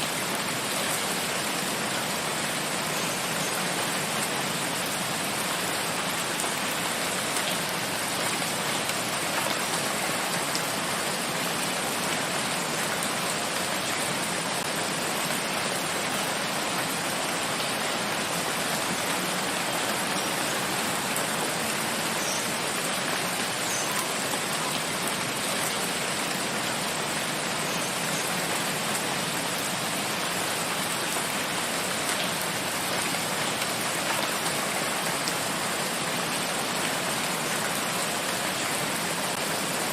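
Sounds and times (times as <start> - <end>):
rain falling in a forest: 0.0 - 39.9.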